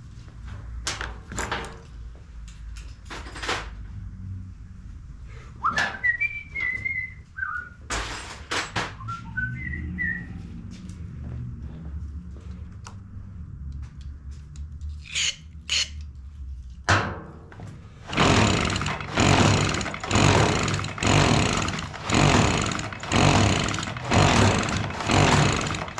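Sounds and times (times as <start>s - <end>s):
person whistling a tune: 5.6s - 7.8s, 9.0s - 10.4s
tools clattering on workbench: 7.9s - 9.0s.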